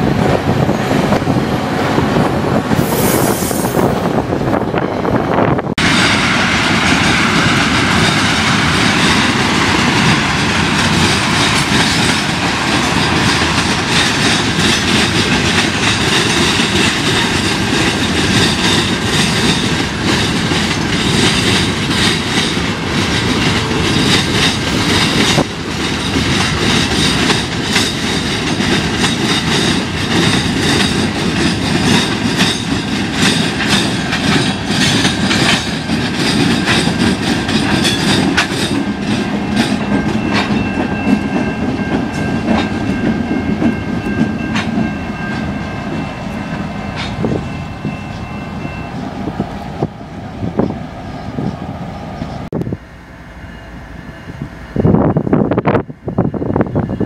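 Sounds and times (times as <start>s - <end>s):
train wheels clattering: 5.8s - 49.4s.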